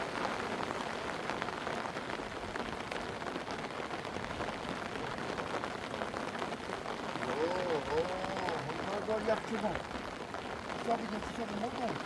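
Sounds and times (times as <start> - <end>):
rain drops pattering: 0.0 - 12.0.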